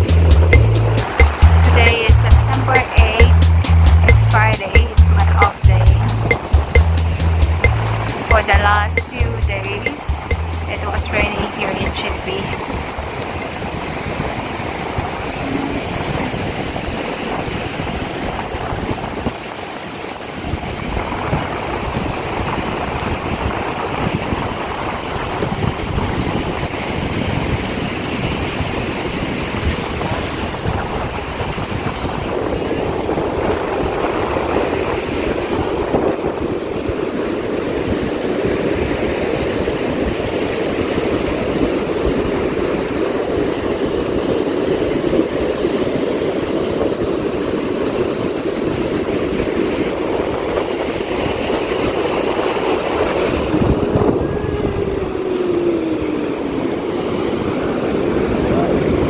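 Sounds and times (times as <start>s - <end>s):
surf breaking on beach: 10.7s - 59.0s
wind buffeting microphone: 12.5s - 59.0s.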